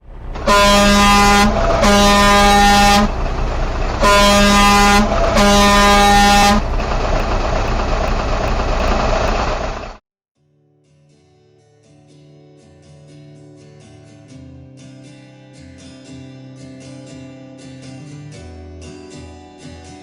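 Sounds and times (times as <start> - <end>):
low vehicle rumble: 0.0 - 10.0
truck air horn blasts: 0.0 - 10.0.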